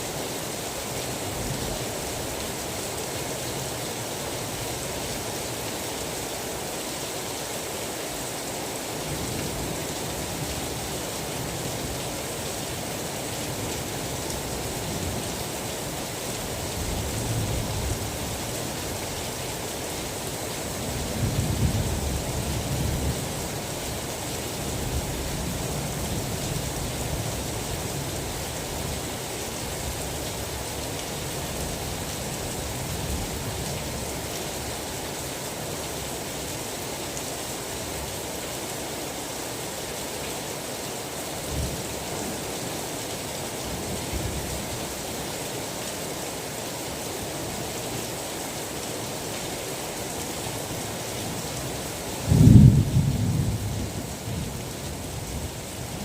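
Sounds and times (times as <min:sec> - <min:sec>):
steady rain falling: 0:00.0 - 0:56.0
low rumble of thunder: 0:52.3 - 0:54.6.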